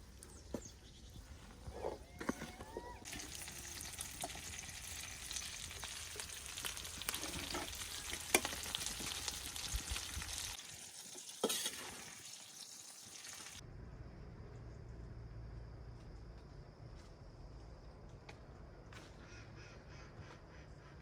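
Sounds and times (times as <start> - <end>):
food sizzling in a pan: 3.0 - 13.6.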